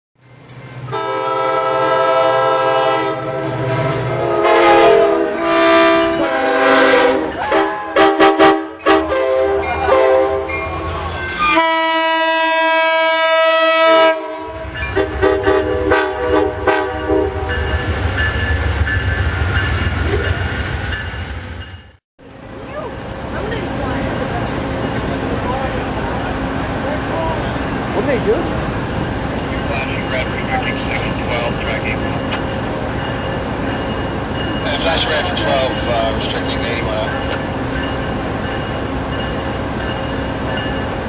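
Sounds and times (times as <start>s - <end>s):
locomotive horn blasts: 0.9s - 10.5s, 11.4s - 17.7s
diesel engines rumbling: 22.2s - 41.0s.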